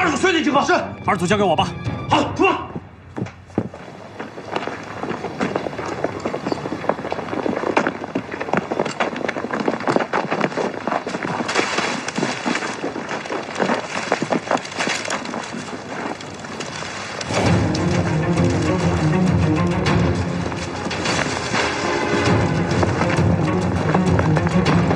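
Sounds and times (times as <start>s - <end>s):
music: 0.0s - 2.8s, 17.3s - 24.9s
booted footsteps running: 2.7s - 24.9s.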